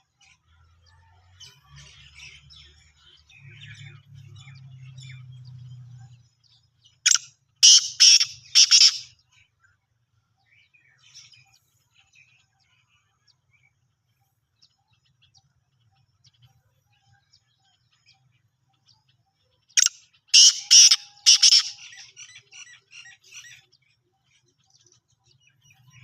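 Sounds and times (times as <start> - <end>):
faint bird chirps: 0.0 - 26.0
francolin calling: 7.1 - 9.1, 19.8 - 23.5.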